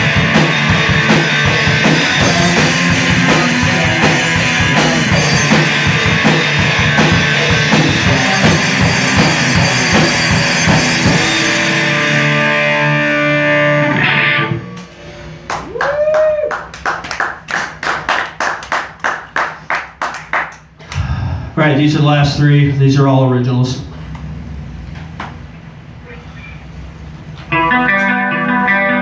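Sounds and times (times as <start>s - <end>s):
live rock band: 0.0s - 16.2s, 27.4s - 29.0s
people clapping: 15.4s - 21.1s
person whooping: 15.6s - 16.8s.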